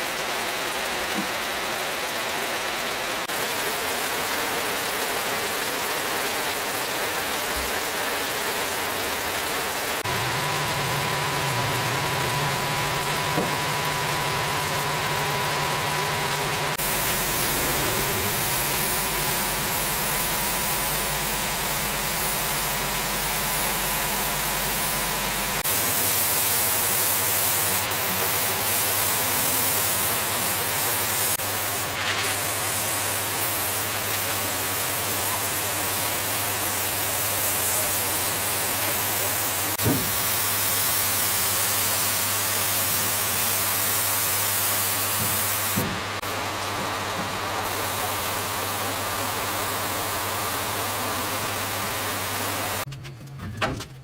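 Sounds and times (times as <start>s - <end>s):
loud spray-like hiss: 9.9s - 46.4s
low motor hum: 10.0s - 25.7s, 52.8s - 54.0s.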